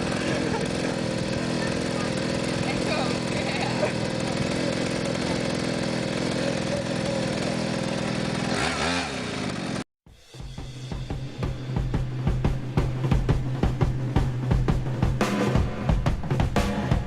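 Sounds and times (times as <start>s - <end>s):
small motorcycle engine running: 0.0s - 17.0s
music with drum beat and bass: 10.1s - 17.0s.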